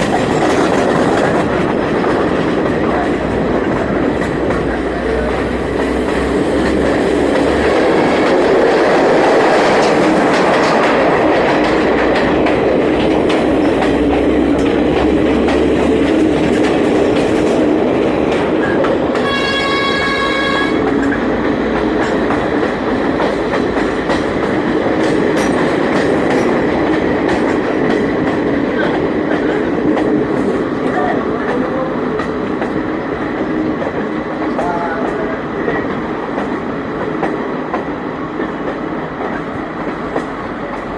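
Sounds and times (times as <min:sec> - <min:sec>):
train wheels clattering on rails: 0:00.0 - 0:40.9
train horn: 0:19.2 - 0:21.0.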